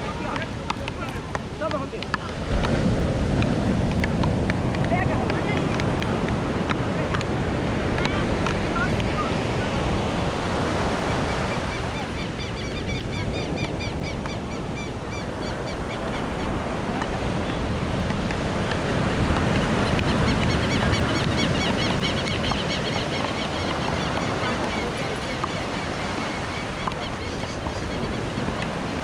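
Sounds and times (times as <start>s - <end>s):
ocean surf on beach: 0.0s - 29.0s
wind on microphone: 0.0s - 29.0s.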